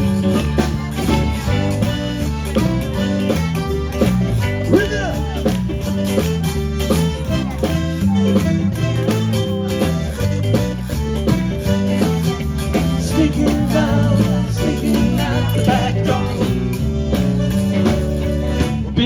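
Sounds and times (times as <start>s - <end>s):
guitar: 0.0s - 19.0s
steady beat: 0.0s - 19.0s
stepping bass line: 0.0s - 19.0s.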